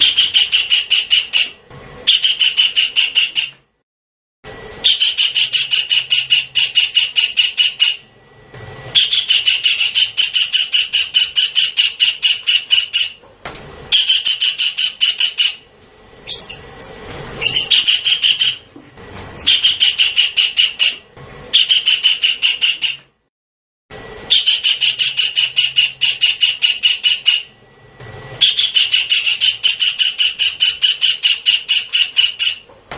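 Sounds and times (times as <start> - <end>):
kingfisher rattling call: 9.0 - 13.2, 16.3 - 18.6, 28.4 - 32.6.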